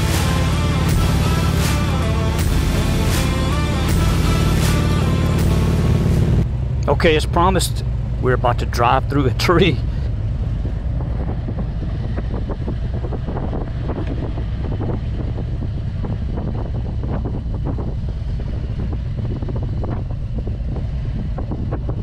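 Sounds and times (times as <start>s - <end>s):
motorcycle engine rumbling: 0.0s - 22.0s
wind on microphone: 10.1s - 22.0s.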